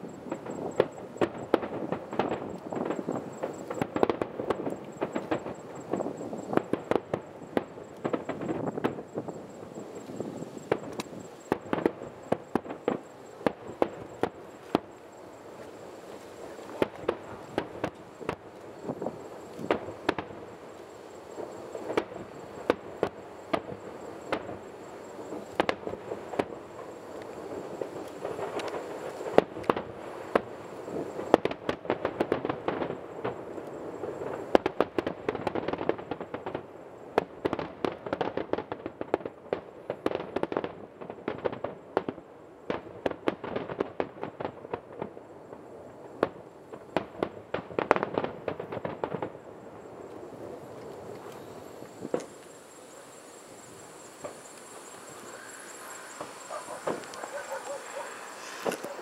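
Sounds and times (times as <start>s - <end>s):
firework shells bursting: 50.5s - 59.0s.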